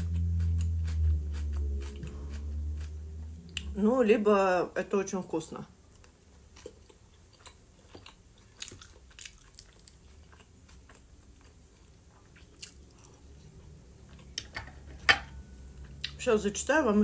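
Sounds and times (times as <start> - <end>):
chewing crisps: 0.0 - 3.7, 6.0 - 13.2.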